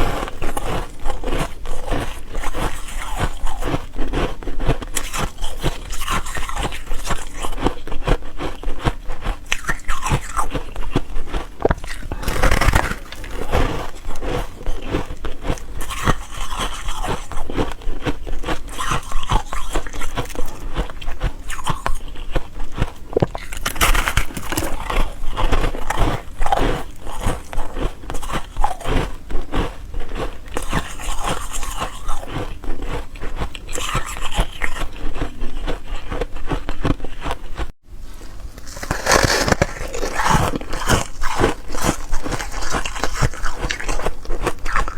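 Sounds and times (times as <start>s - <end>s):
ice being chewed: 0.0s - 44.9s.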